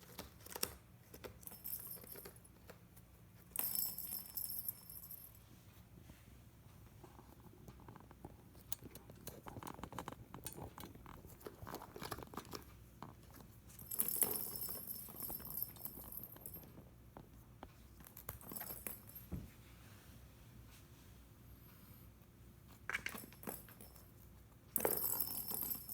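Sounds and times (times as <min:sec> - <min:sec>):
cat toy clicking and rustling: 0:00.0 - 0:04.2, 0:07.2 - 0:16.9.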